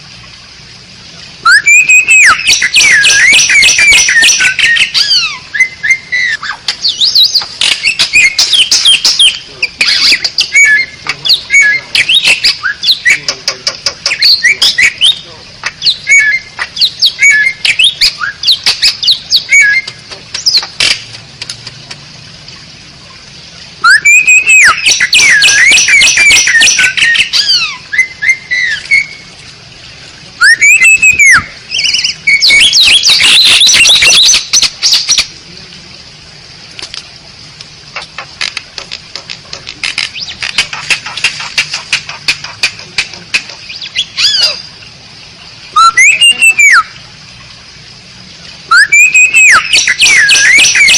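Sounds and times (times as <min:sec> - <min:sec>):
bird whistling song: 0:01.4 - 0:13.4, 0:14.0 - 0:20.7, 0:23.8 - 0:29.3, 0:30.4 - 0:35.3, 0:43.7 - 0:44.7, 0:45.7 - 0:47.0, 0:48.7 - 0:50.9
bird harsh squawks: 0:01.4 - 0:20.7, 0:23.8 - 0:29.2, 0:30.4 - 0:35.3, 0:40.1 - 0:44.7, 0:45.8 - 0:46.9, 0:48.7 - 0:50.9
bird clicking chatter: 0:06.7 - 0:11.4, 0:12.0 - 0:16.0, 0:37.6 - 0:44.0.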